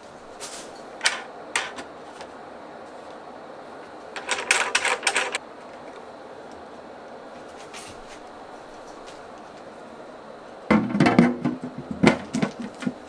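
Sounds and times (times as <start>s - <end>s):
rapid clicking and rattling: 4.2s - 5.4s.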